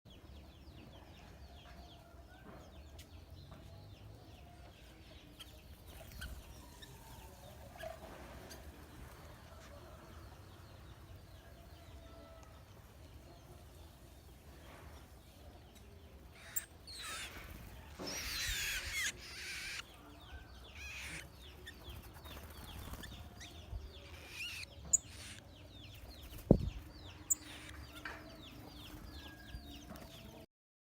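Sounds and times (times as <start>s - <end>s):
birds squawking: 16.4s - 19.9s, 20.7s - 21.8s, 27.3s - 28.2s.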